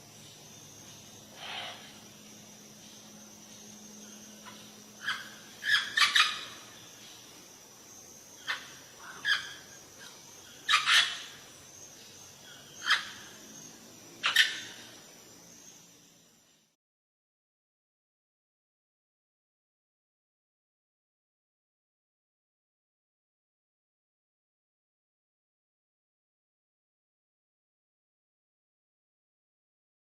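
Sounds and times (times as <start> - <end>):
parrot squawking: 5.0 - 6.6, 10.7 - 11.2.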